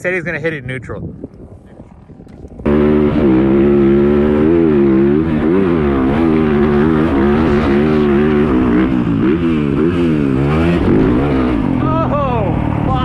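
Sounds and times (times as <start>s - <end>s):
dirt bike engine revving: 2.6s - 13.0s.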